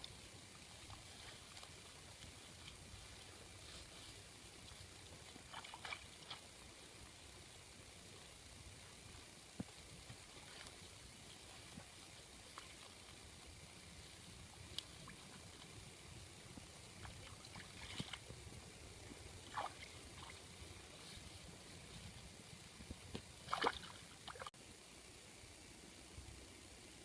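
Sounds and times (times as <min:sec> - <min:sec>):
water sloshing and splashing: 0:00.7 - 0:06.6, 0:16.8 - 0:18.6, 0:19.4 - 0:22.2, 0:22.8 - 0:24.5.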